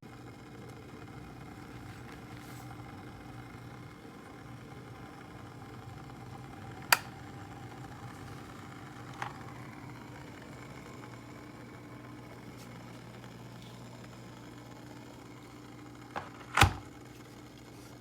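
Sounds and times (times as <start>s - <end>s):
electric kettle humming: 0.0s - 18.0s
kettle switch click: 6.9s - 7.2s.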